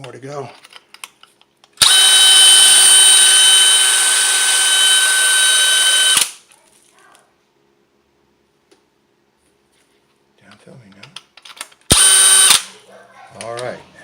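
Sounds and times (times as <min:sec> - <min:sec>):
small power tool whining: 0:01.8 - 0:06.4, 0:11.9 - 0:12.7.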